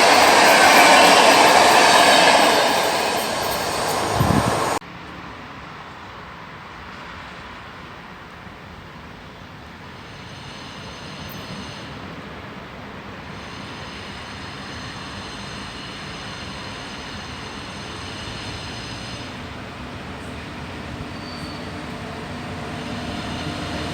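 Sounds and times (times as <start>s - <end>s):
freight train rumble: 0.0s - 4.8s, 9.8s - 23.9s.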